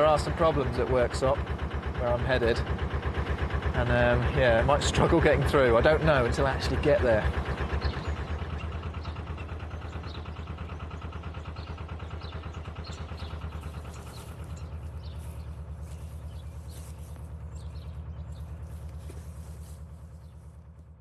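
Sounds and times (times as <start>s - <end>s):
diesel engine chugging: 0.0s - 21.0s
birds chirping faintly: 6.3s - 21.0s.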